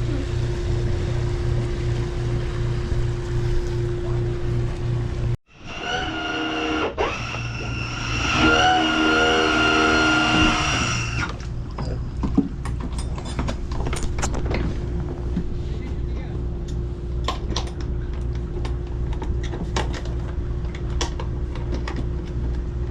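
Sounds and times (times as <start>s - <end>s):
boat jet engine whine: 0.0s - 11.9s.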